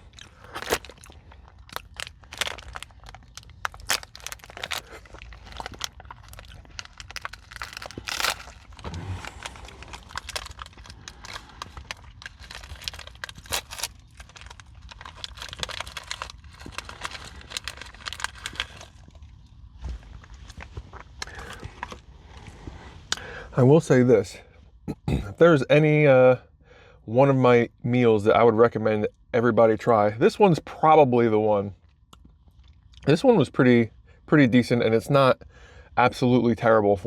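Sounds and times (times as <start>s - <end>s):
chewing crunchy granola bar: 0.0s - 22.7s, 31.8s - 33.1s.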